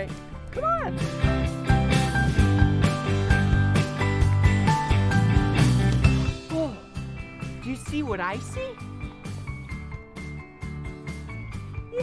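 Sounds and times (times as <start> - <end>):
upbeat music with guitar and drums: 0.0 - 12.0.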